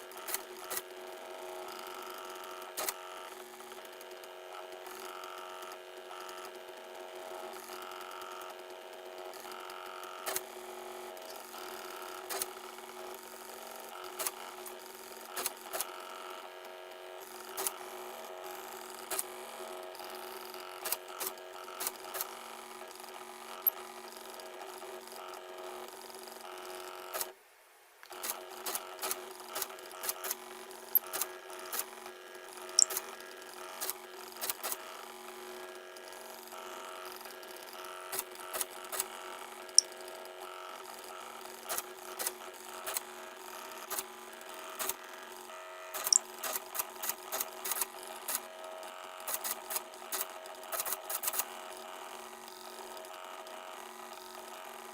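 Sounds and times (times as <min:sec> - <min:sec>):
sharp irregular ticks: 0:32.7 - 0:33.1, 0:46.0 - 0:48.4.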